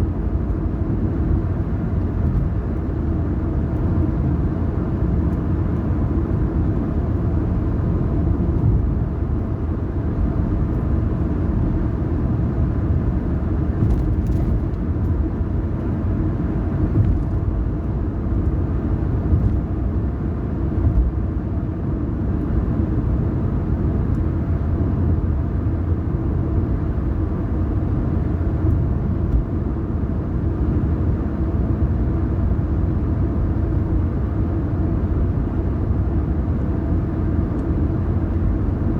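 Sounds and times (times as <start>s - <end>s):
car engine and tyre road noise: 0.0s - 38.9s.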